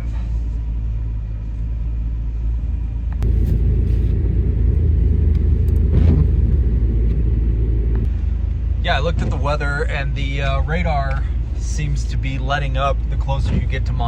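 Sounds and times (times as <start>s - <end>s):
van road and drivetrain rumble: 0.0s - 14.0s.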